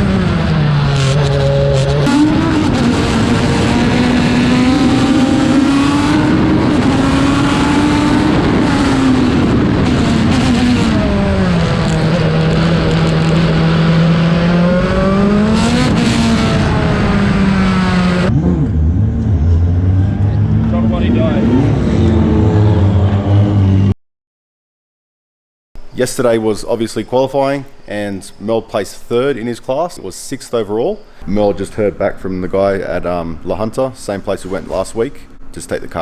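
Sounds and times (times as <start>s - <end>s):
race car engine running hard: 0.0s - 23.9s.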